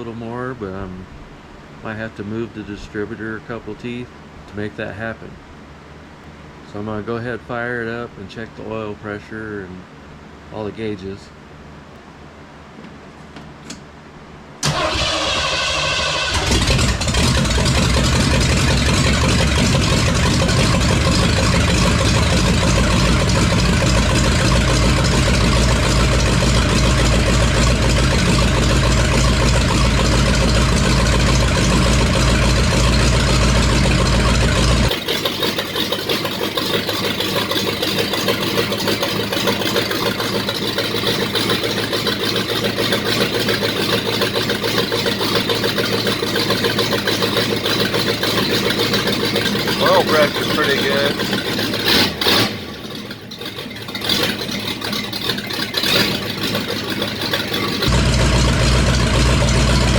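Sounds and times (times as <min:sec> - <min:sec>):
engine cranking: 0:14.6 - 0:59.9
engine idling: 0:14.6 - 0:59.9.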